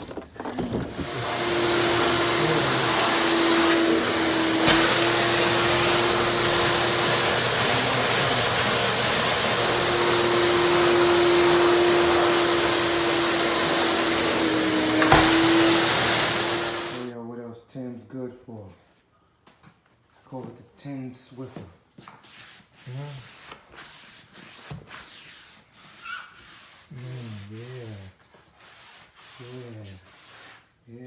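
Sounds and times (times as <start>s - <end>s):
shop vacuum running: 0.5s - 17.1s.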